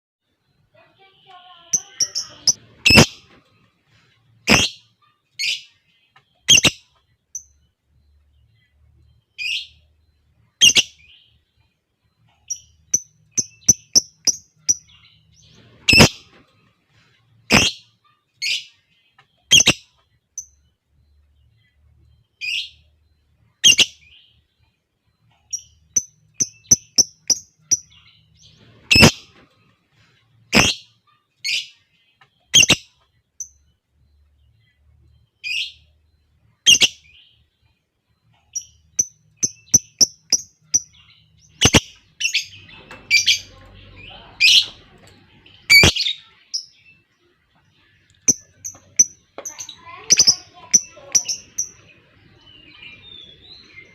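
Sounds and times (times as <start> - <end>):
lovebirds screeching: 1.8 - 3.4, 4.5 - 5.6, 15.6 - 16.4, 28.6 - 29.4, 30.5 - 30.9, 41.5 - 45.0, 45.6 - 46.2.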